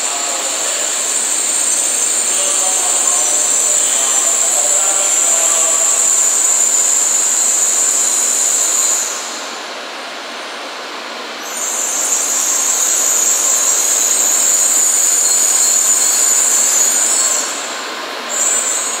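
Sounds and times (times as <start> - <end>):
high-pitched brake squeal: 0.0 - 9.5, 11.4 - 19.0
train running slowly: 0.0 - 19.0.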